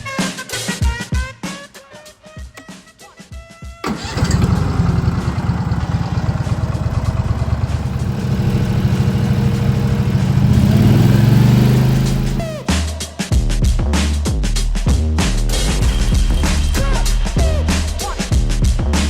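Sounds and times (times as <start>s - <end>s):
brush cutter engine running: 3.9s - 12.6s.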